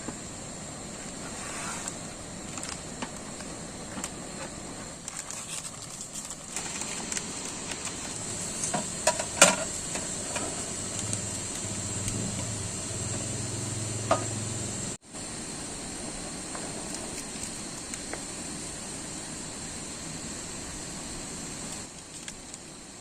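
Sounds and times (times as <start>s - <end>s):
food sizzling: 0.0s - 23.0s
low hum: 7.2s - 21.7s.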